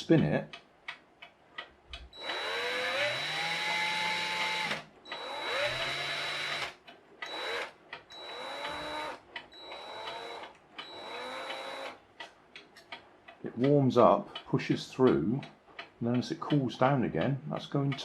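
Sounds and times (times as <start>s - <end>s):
electric drill whining: 2.2s - 12.0s.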